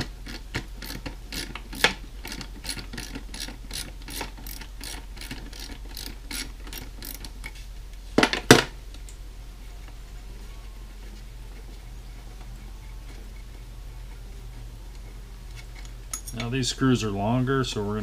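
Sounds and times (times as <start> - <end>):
ratcheting driver clicking: 0.2 - 7.6.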